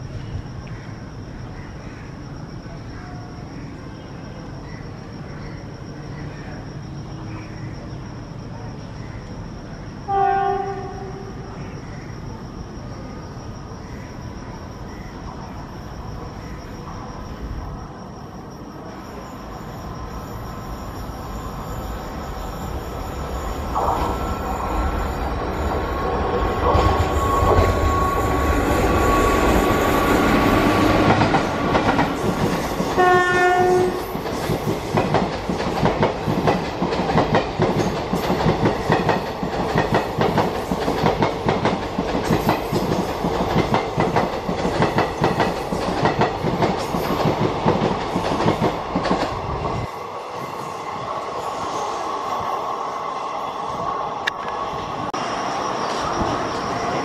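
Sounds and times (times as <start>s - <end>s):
train horn blast: 10.1s - 11.4s, 33.0s - 34.0s.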